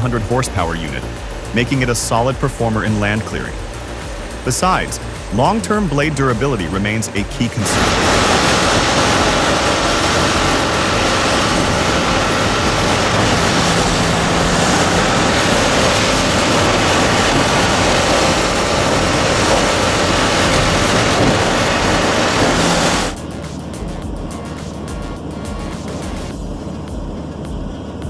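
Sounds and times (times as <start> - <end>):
wood grinder shredding wood: 0.0 - 23.2.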